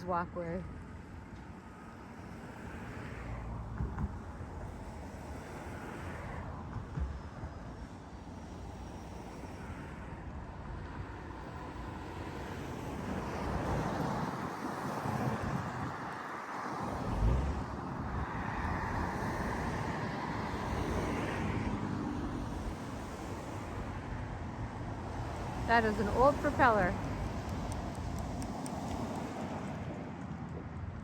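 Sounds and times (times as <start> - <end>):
road traffic rushing by: 0.0 - 31.0
wind on microphone: 11.6 - 31.0.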